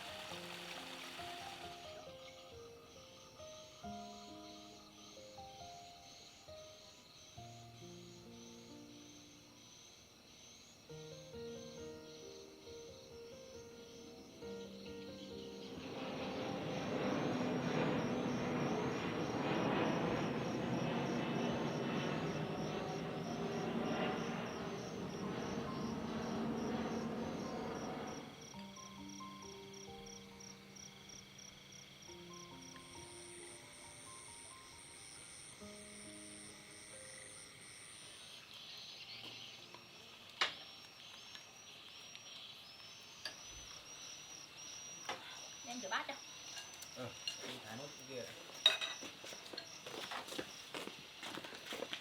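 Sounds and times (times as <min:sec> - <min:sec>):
background music: 0:00.0 - 0:09.9, 0:10.8 - 0:38.1
faint hiss: 0:00.0 - 0:17.9
crickets chirping: 0:00.0 - 0:52.0
steady rushing background noise: 0:15.3 - 0:28.6.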